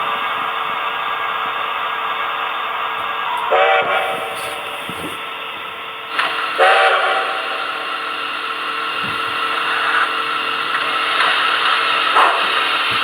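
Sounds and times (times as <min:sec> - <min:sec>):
model train running noise: 0:00.0 - 0:13.0
steam whistle blast: 0:03.2 - 0:05.3, 0:06.2 - 0:08.8.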